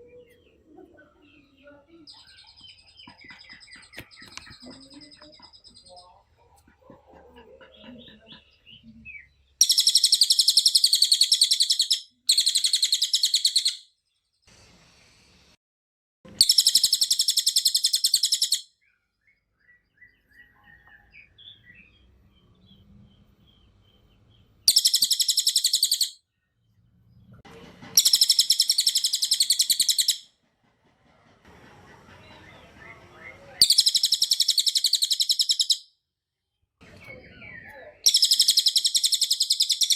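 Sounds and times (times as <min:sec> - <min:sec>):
soft bird twitters: 0:00.0 - 0:13.8, 0:16.3 - 0:27.3, 0:28.0 - 0:30.2, 0:33.6 - 0:35.8, 0:36.8 - 0:39.9.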